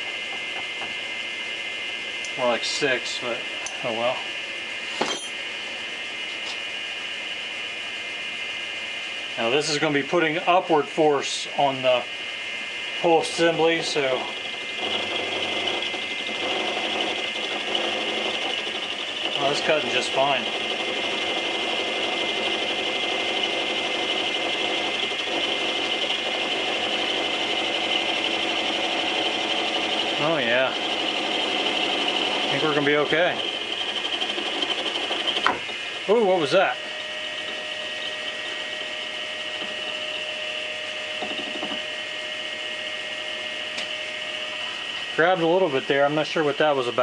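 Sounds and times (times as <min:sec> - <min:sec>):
lathe cutter grinding hiss: 0:00.0 - 0:47.0
machine hum: 0:00.0 - 0:47.0.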